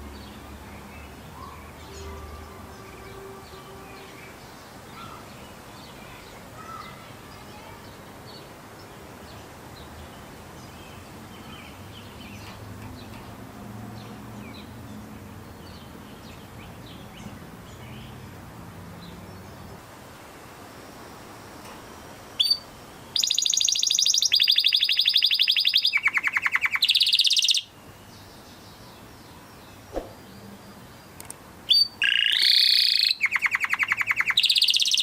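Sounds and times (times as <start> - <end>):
birds chirping: 0.0 - 20.0, 20.6 - 35.0
steady background hum and hiss: 0.0 - 35.0.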